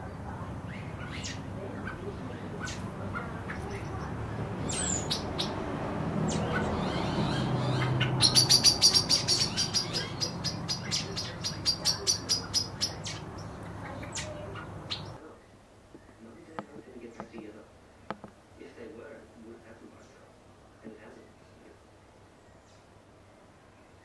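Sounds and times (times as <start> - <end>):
small bird chirping: 0.0 - 15.2
low background hum: 0.0 - 24.0.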